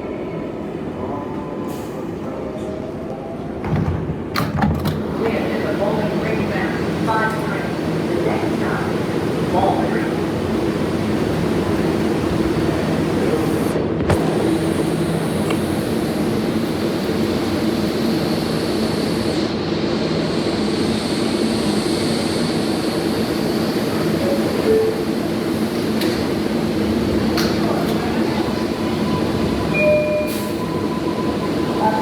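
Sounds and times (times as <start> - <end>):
subway train rumbling: 0.0 - 32.0.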